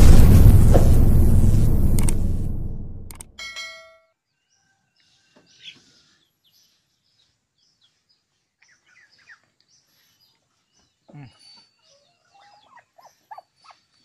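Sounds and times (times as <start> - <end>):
faint bird chirps: 8.6 - 14.0.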